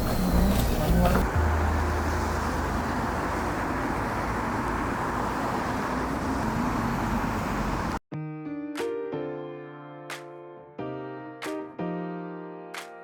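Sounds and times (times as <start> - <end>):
vehicle and road noise: 0.0 - 8.0
soft piano music: 8.1 - 13.0.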